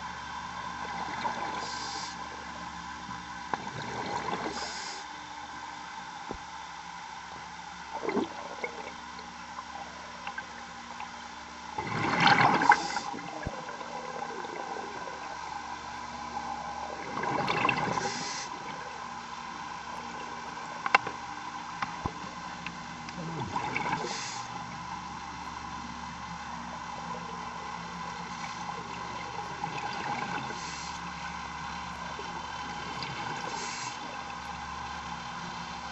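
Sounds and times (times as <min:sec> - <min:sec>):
steady hum: 0:00.0 - 0:35.9
diver exhaling bubbles: 0:07.9 - 0:09.0, 0:11.8 - 0:15.5, 0:16.6 - 0:19.0, 0:23.1 - 0:24.5.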